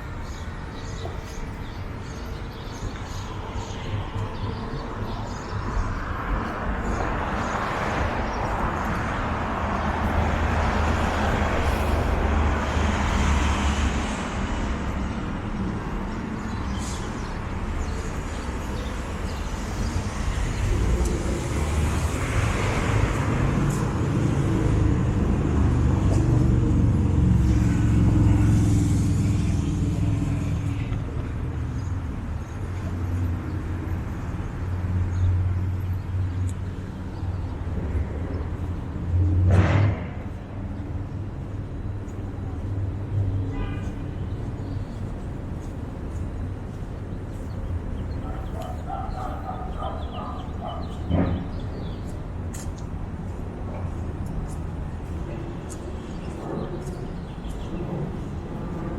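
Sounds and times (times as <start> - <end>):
cars passing: 0.0 - 58.9.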